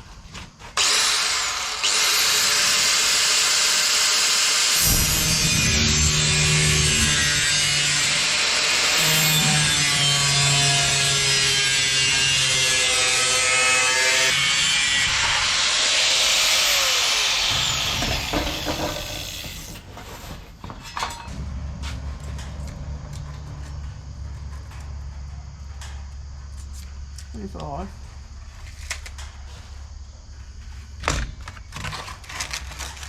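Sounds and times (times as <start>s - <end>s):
power tool motor whine: 0.8s - 19.8s.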